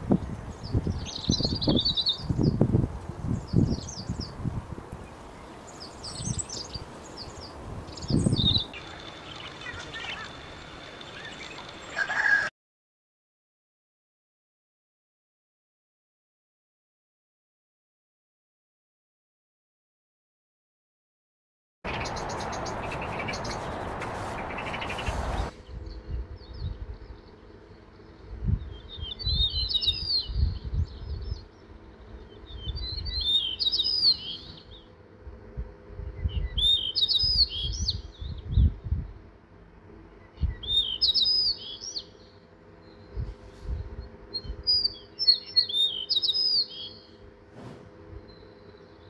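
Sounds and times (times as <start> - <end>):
songbird warbling: 8.0 - 12.5, 21.9 - 25.5
loud even rush of noise: 21.9 - 25.6.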